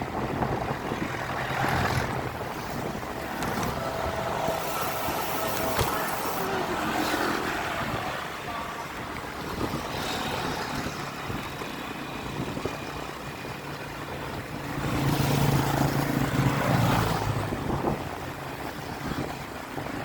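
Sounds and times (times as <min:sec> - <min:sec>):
road traffic: 0:00.0 - 0:20.0
wind on microphone: 0:00.0 - 0:20.0
vehicle engine passing by: 0:01.2 - 0:08.3.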